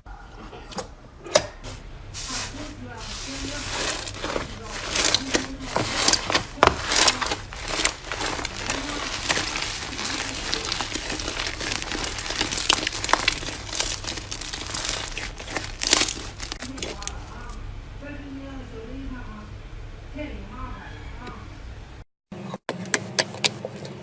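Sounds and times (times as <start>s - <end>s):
crisp material crackling by hand: 2.2s - 17.6s.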